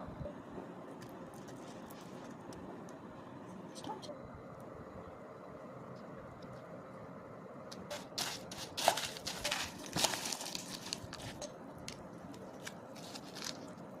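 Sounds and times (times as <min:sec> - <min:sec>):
dry snack crackling and rustling: 0:01.0 - 0:02.6, 0:07.7 - 0:14.0.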